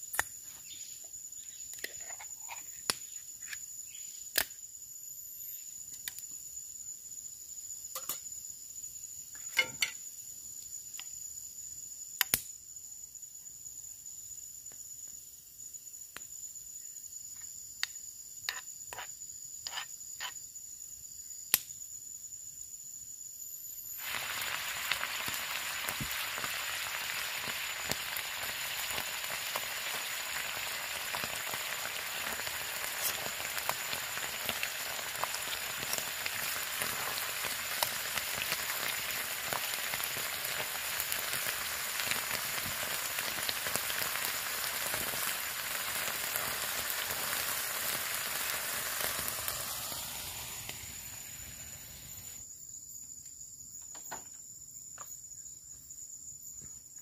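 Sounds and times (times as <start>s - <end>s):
heavy rain hissing and pattering: 24.0s - 52.1s.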